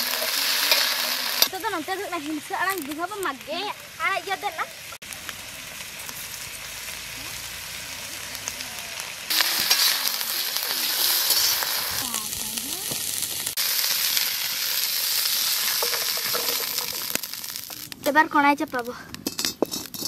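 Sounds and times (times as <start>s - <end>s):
vegetables sizzling in hot oil: 0.0s - 20.0s
spatula stirring in a wok: 14.8s - 17.8s, 19.2s - 20.0s.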